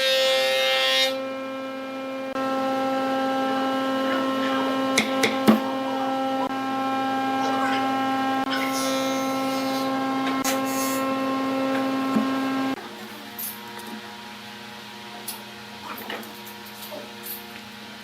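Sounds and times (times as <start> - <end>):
wood lathe motor humming: 0.0 - 18.0
small knocks: 4.9 - 5.8.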